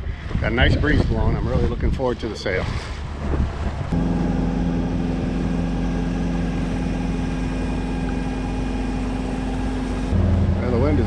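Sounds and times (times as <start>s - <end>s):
wind rumble on microphone: 0.0s - 11.0s
diesel engine humming: 3.7s - 11.0s.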